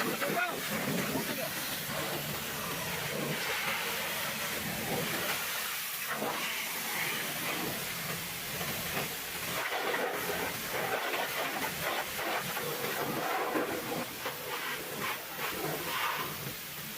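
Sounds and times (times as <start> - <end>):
pressure washer spraying water: 0.0 - 16.9.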